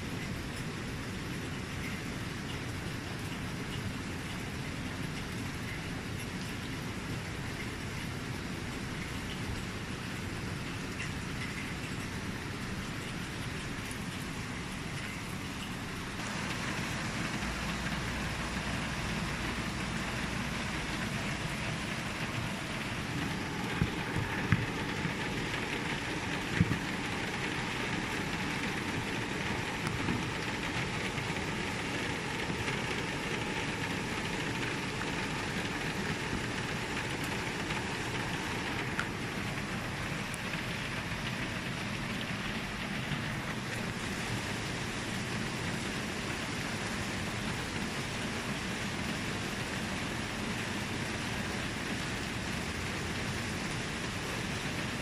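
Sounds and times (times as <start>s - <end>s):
steady rain hiss: 0.0s - 55.0s
sharp drip-like taps: 8.7s - 12.1s, 21.1s - 31.1s.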